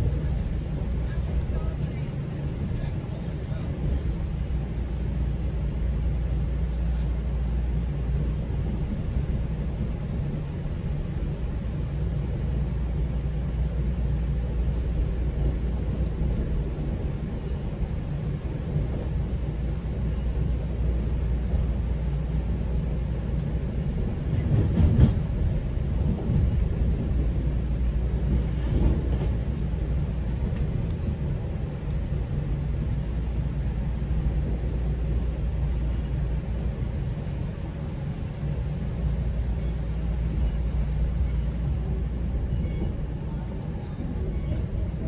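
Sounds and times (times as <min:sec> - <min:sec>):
train wheels rumbling on rail: 0:00.0 - 0:45.0
train clatter: 0:21.6 - 0:45.0.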